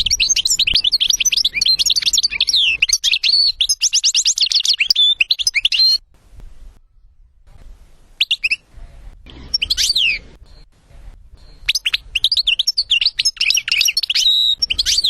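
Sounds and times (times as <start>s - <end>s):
finch twittering song: 0.0s - 6.0s, 9.3s - 10.7s, 11.3s - 15.0s.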